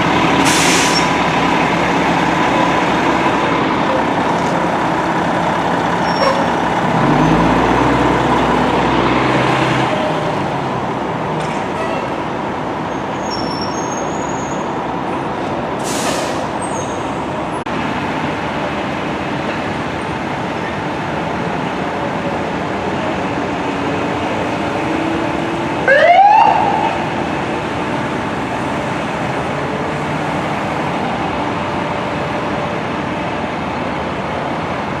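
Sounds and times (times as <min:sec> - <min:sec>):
fire engine running: 0:00.0 - 0:35.0
street traffic: 0:00.0 - 0:35.0
short hiss: 0:15.8 - 0:16.5
emergency siren winding up: 0:25.8 - 0:27.1.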